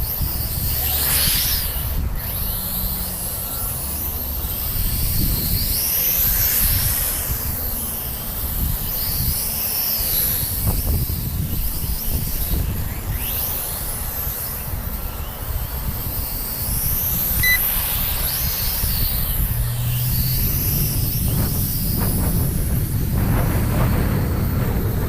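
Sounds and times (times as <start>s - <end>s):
drone motors whining: 0.0s - 25.0s
wind buffeting microphone: 0.0s - 25.0s
short beep: 17.4s - 17.7s.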